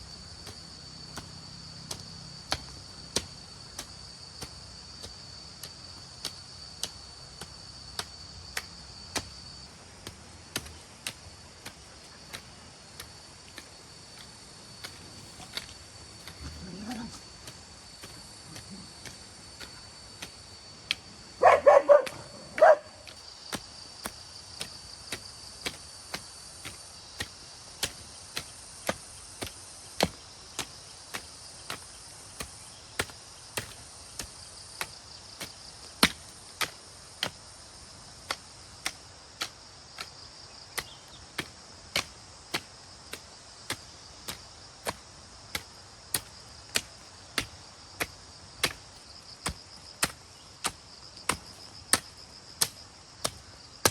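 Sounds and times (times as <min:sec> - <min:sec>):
insects droning: 0:00.0 - 0:53.9.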